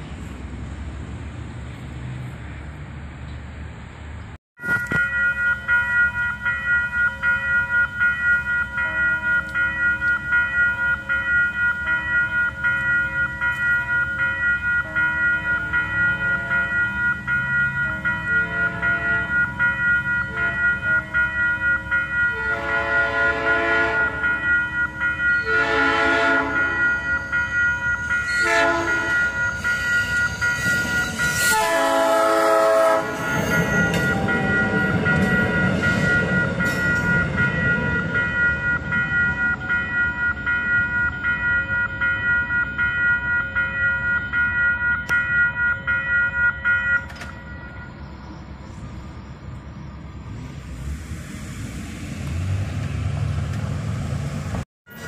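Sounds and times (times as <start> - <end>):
train rushing past: 0.0 - 43.6, 47.3 - 55.0
railroad crossing bell ringing: 4.6 - 50.4
train horn blasts: 17.9 - 19.5, 20.2 - 21.2, 22.3 - 24.4, 25.4 - 27.3, 27.9 - 34.7.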